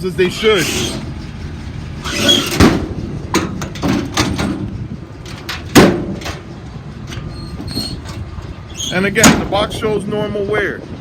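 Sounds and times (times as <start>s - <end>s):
latch clicks and knocks: 2.5s - 6.4s.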